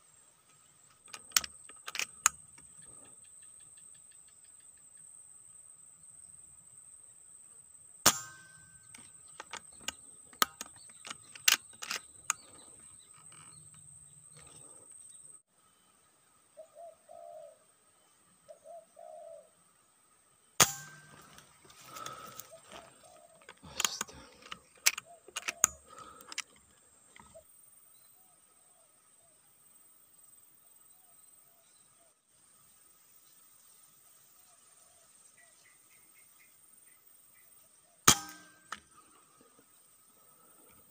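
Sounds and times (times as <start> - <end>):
sharp clicks and knocks: 0.9 - 2.9, 8.1 - 14.6, 23.4 - 27.3
dove cooing: 16.6 - 17.7, 18.5 - 19.6, 21.9 - 26.2.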